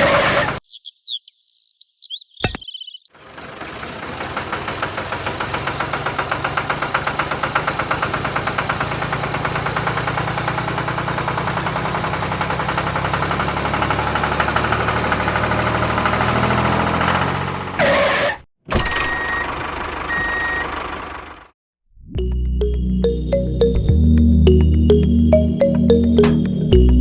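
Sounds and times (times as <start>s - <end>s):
tractor engine chugging: 3.2s - 16.3s, 19.5s - 21.4s.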